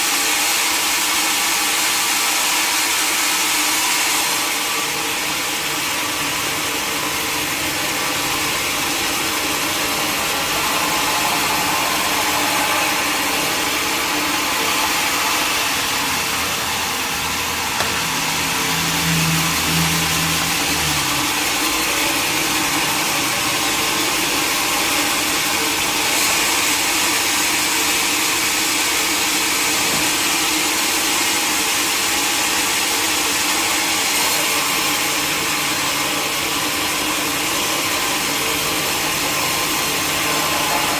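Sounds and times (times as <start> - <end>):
sawmill machinery whirring: 0.0 - 40.9
low drone: 9.6 - 23.9.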